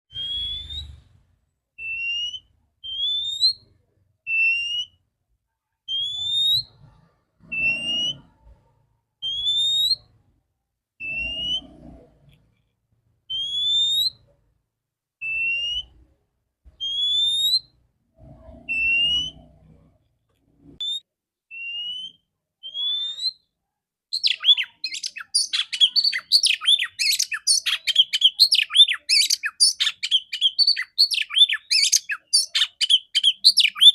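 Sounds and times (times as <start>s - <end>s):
fast varied birdsong: 11.0s - 12.0s, 24.1s - 33.9s
bird whistled call: 24.2s - 33.9s.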